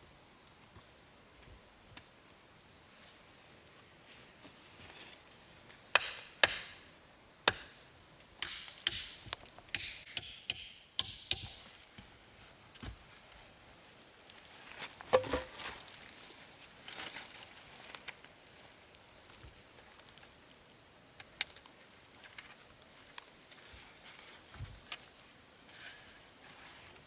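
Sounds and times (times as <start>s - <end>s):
sharp knocks and clatters: 8.4s - 11.8s, 15.1s - 15.6s.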